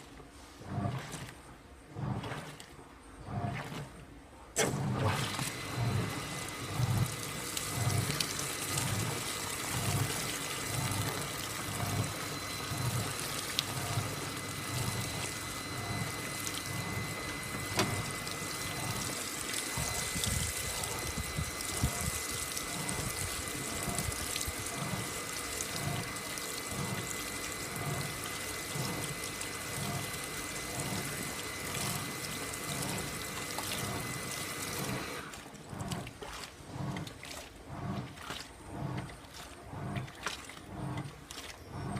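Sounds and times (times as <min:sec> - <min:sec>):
washing machine water sloshing: 0:00.0 - 0:41.9
thin steady whine: 0:04.6 - 0:35.4.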